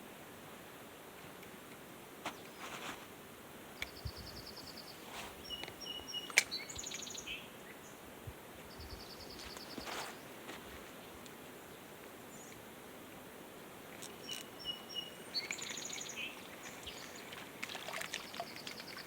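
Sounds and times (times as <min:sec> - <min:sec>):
small birds chirping: 0:03.8 - 0:08.0, 0:08.7 - 0:11.0, 0:14.0 - 0:19.0
creek running: 0:12.7 - 0:19.0.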